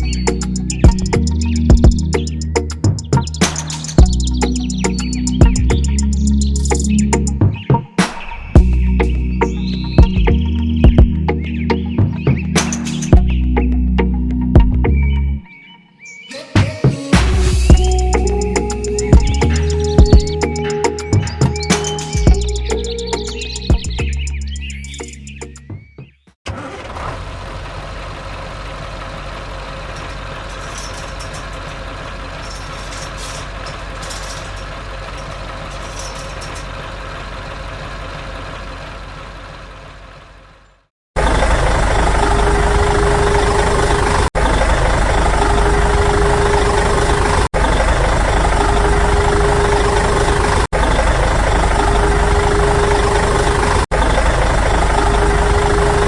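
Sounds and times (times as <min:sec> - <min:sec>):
engine idling: 0:00.0 - 0:07.4, 0:26.5 - 0:56.0
motor hum: 0:26.5 - 0:40.9.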